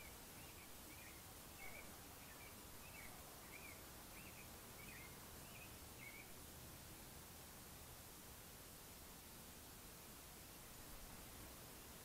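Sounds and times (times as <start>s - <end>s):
faint bird chirps: 0.0s - 6.4s.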